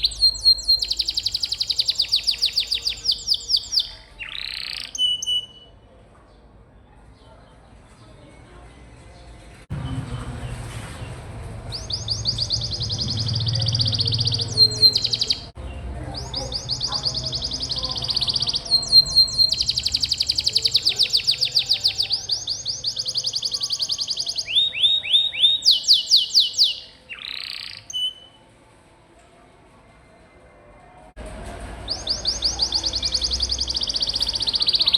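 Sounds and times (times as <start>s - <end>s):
canary singing trills: 0.0s - 5.8s, 11.7s - 28.4s, 31.8s - 34.9s.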